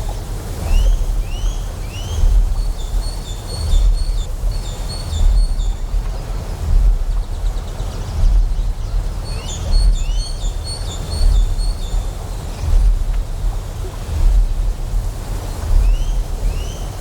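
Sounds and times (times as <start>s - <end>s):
deep pulsing generator hum: 0.0s - 17.0s.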